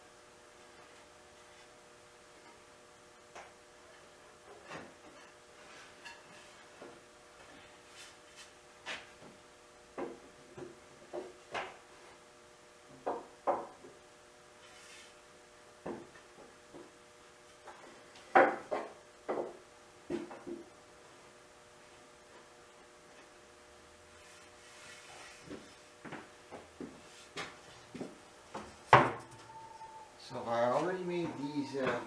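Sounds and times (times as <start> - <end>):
wooden boards knocking and clattering: 12.9 - 13.9, 17.7 - 20.6, 28.6 - 29.3.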